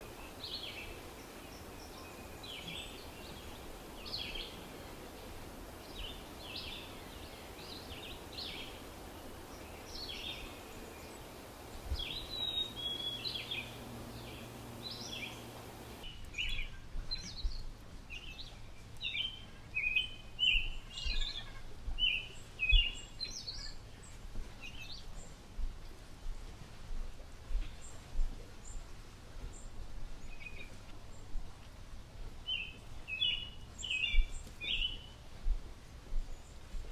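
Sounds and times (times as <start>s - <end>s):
faint low hum: 0.0s - 16.0s
steady background hiss: 0.0s - 16.1s
bird-like chirping: 9.5s - 16.0s.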